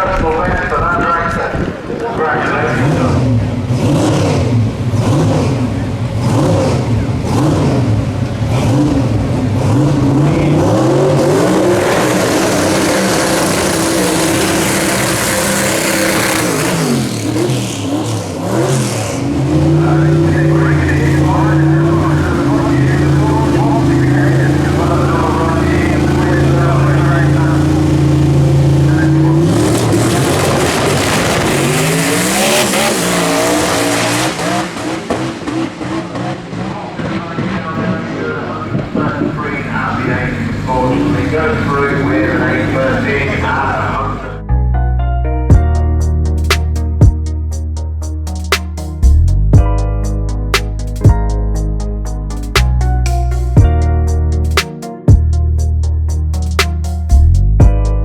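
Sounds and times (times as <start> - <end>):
dragster engine revving: 0.0 - 44.4.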